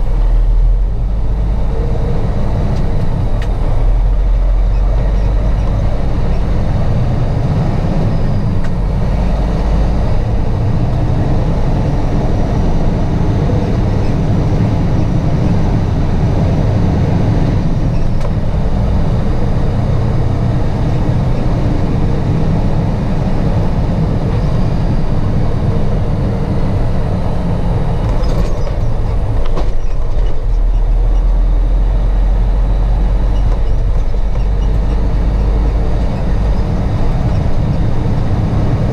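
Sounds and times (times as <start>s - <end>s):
heavy truck engine rumble: 0.0s - 38.9s.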